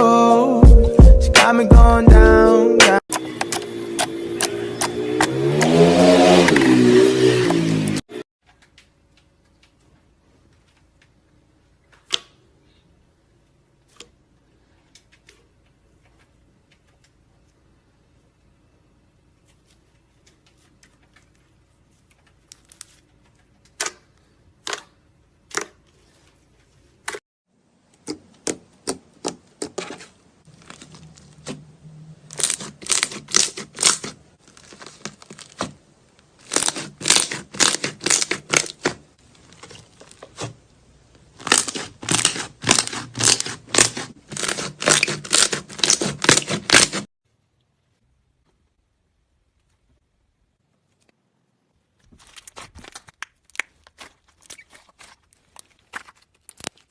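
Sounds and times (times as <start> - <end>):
slime clicking and popping: 52.4 - 56.9.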